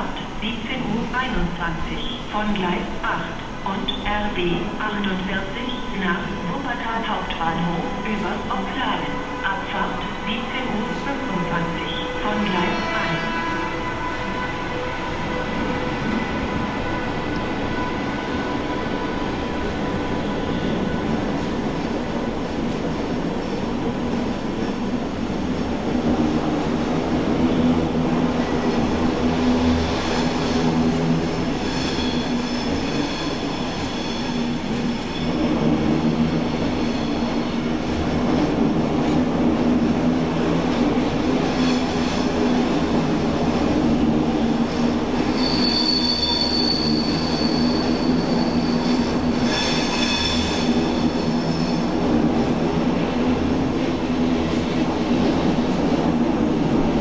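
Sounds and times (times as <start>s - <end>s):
train wheels rumbling on rail: 0.0s - 57.0s
high-pitched wheel squeals: 45.3s - 51.9s.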